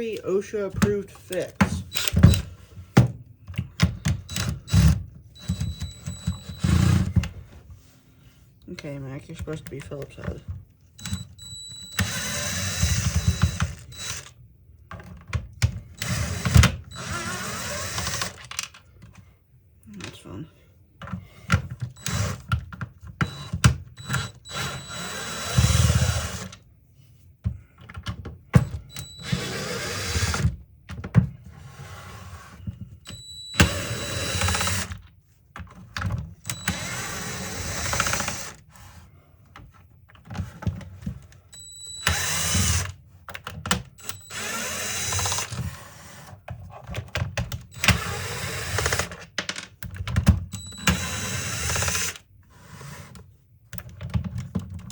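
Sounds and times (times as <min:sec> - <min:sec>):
cordless drill whining: 0:01.2 - 0:02.6, 0:04.0 - 0:07.2, 0:11.0 - 0:14.4, 0:15.8 - 0:18.5, 0:21.9 - 0:22.5, 0:23.2 - 0:26.6, 0:28.6 - 0:30.6, 0:33.0 - 0:35.0, 0:36.4 - 0:38.6, 0:41.5 - 0:43.0, 0:44.0 - 0:46.3, 0:47.7 - 0:49.2, 0:50.6 - 0:52.2.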